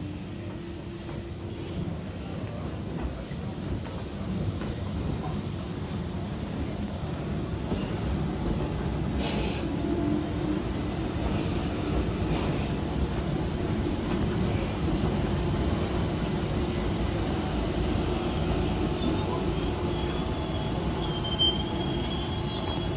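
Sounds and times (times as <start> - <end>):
train rumbling: 0.0 - 22.9
wheels squealing on rails: 17.3 - 22.9.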